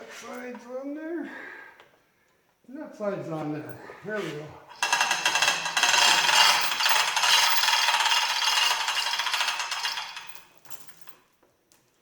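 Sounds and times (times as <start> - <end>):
metallic ratchet clatter: 4.8 - 10.4.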